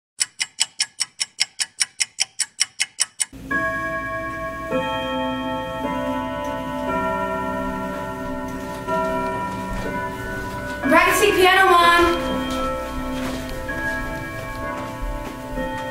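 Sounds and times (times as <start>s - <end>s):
rapid even ticking: 0.2s - 3.4s
slow sustained piano chords: 3.3s - 15.9s.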